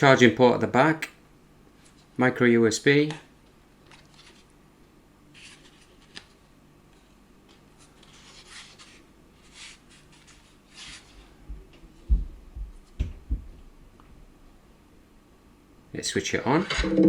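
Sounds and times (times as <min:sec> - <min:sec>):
low thumps: 0:16.7 - 0:17.0.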